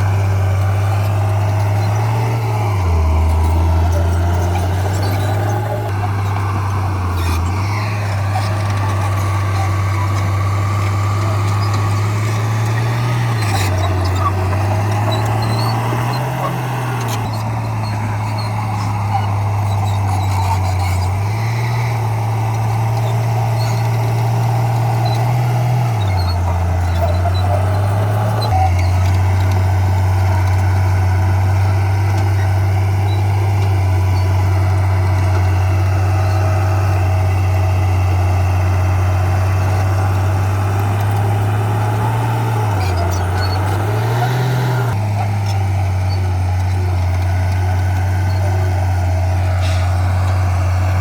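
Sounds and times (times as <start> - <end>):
heavy diesel machinery engine drone: 0.0 - 51.0.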